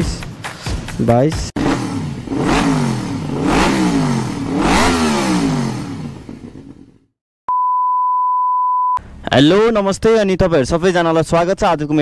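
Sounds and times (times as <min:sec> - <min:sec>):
motorcycle engine revving: 0:01.6 - 0:07.2
steady electronic beep: 0:07.5 - 0:09.0.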